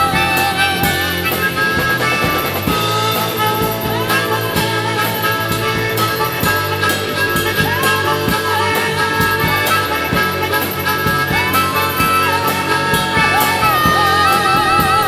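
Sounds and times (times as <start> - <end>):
bass: 0.0 - 15.0
drums on a steady beat: 0.0 - 15.0
lead instrument bending notes: 0.0 - 15.0.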